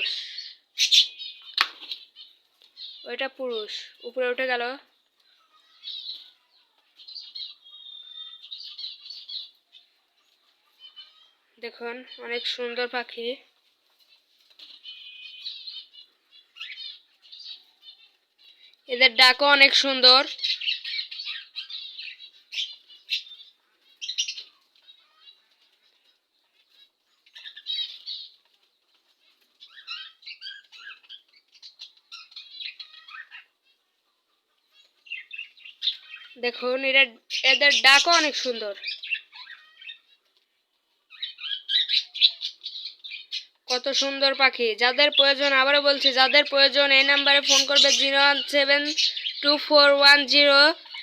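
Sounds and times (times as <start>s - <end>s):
budgerigars chirping and warbling: 0.0s - 13.0s, 14.1s - 51.0s.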